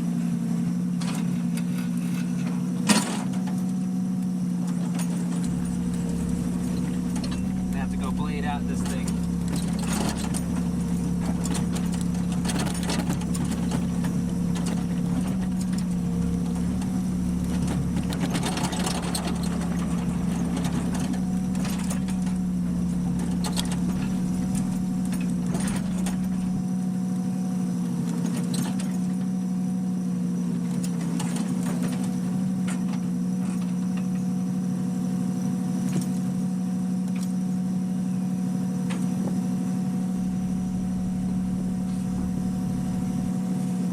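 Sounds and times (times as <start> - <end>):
steady mechanical hum: 0.0 - 43.9
low rumble: 5.4 - 26.6, 40.2 - 43.4.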